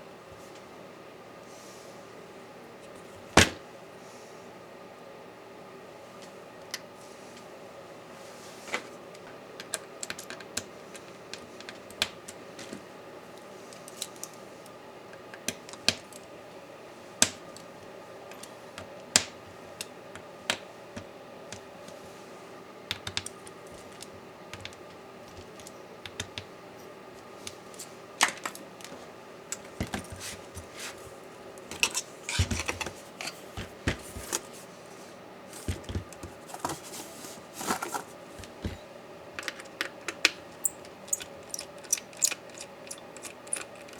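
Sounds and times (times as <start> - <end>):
faint steady hum: 0.0 - 43.9
clicks and taps of tools: 22.9 - 26.5.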